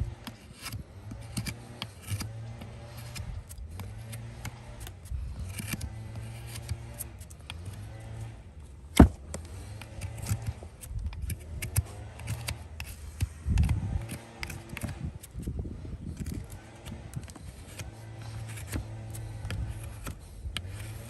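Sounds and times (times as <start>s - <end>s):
tools scraping a hoof: 0.0s - 21.0s
dull thuds: 8.9s - 9.4s.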